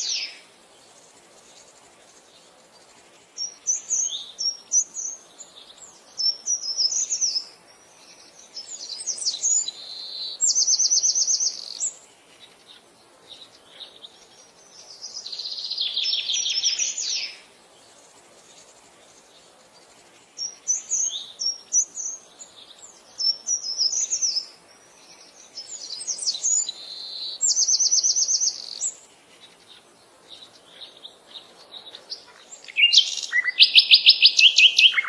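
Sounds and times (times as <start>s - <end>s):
bird trilling: 32.3s - 35.0s
birds chirping and whistling: 32.6s - 35.0s.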